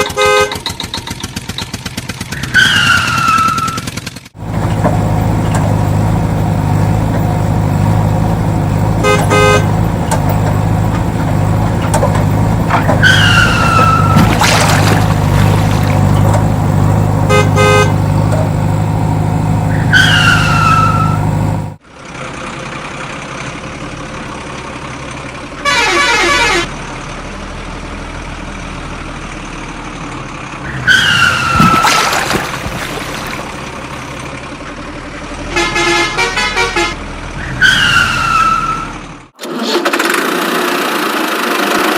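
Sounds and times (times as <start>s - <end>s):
cartoon horn toots: 0.0s - 0.8s, 9.0s - 9.8s, 17.1s - 18.7s, 19.7s - 21.4s, 25.6s - 26.7s, 35.5s - 39.9s
cartoon engine hum: 0.0s - 21.8s.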